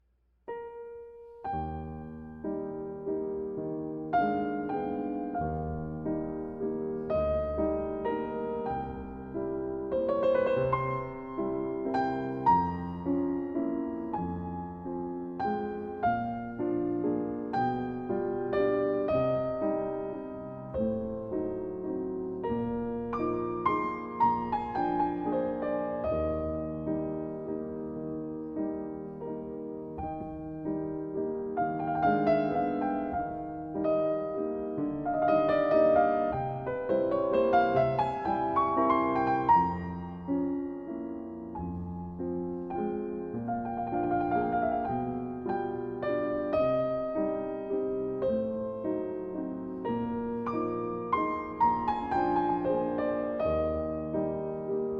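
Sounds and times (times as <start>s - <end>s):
solo piano melody: 0.5s - 54.9s.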